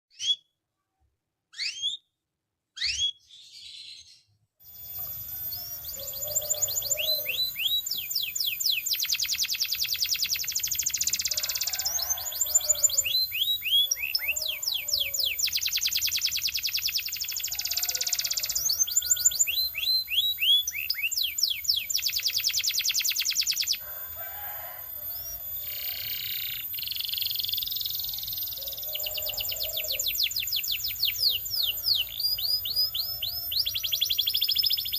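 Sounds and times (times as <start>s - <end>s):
canary singing trills: 1.5s - 2.0s, 2.8s - 34.9s.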